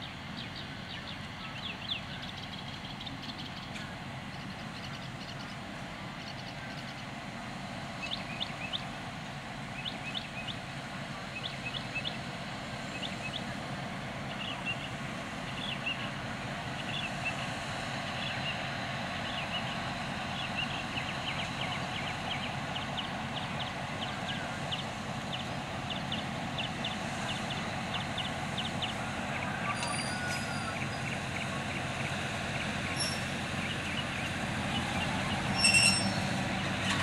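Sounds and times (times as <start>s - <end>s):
train rumbling: 0.0s - 37.0s
short high squeaks: 35.5s - 36.3s.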